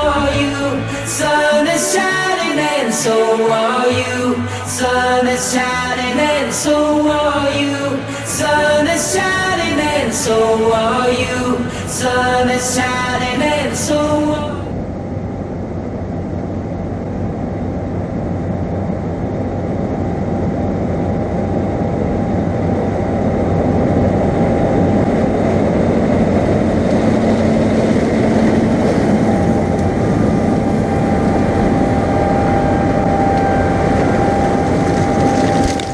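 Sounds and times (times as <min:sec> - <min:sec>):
farm machinery engine drone: 0:00.0 - 0:35.9
high whine: 0:00.0 - 0:35.9.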